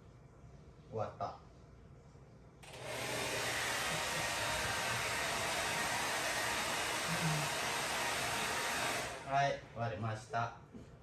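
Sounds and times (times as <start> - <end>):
hair dryer blowing: 2.6 - 9.5.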